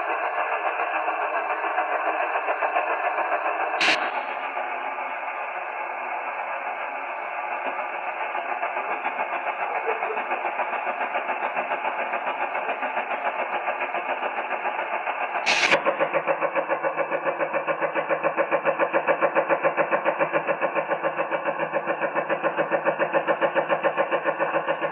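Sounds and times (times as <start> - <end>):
rapid radio pulsing: 0.0 - 24.9
sharp click: 3.8 - 4.5, 15.4 - 16.0
radio hiss: 3.8 - 5.4, 7.5 - 15.8.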